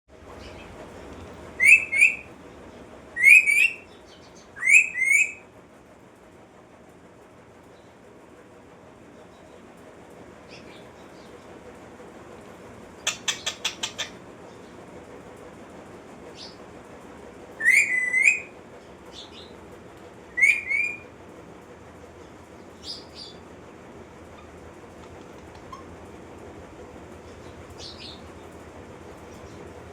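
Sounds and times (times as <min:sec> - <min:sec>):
parrot whistling: 0:01.6 - 0:02.3, 0:03.2 - 0:03.8, 0:04.6 - 0:05.4, 0:17.6 - 0:18.6, 0:20.3 - 0:21.0.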